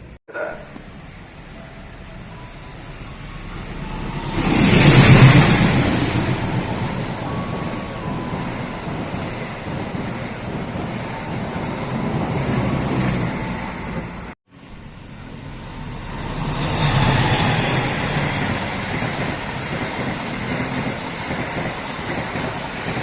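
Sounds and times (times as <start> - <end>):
vehicle passing close by: 1.0 - 8.8, 12.4 - 20.8.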